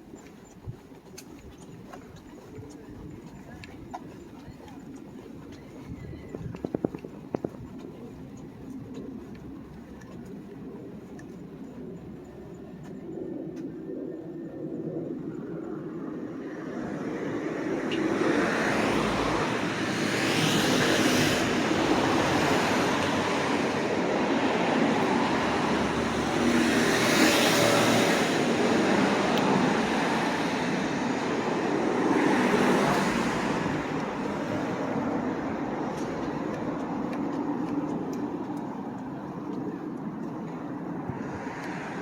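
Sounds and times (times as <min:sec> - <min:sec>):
cars passing: 0:16.4 - 0:42.0.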